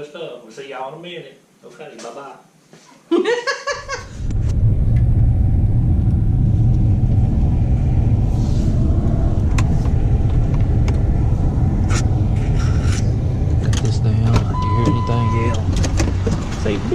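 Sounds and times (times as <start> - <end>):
car engine and road noise: 3.8 - 16.9.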